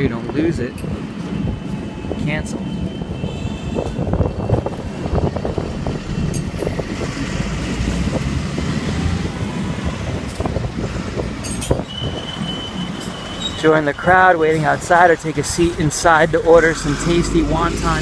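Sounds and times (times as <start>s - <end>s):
motorbike rumble on road: 3.2s - 13.3s.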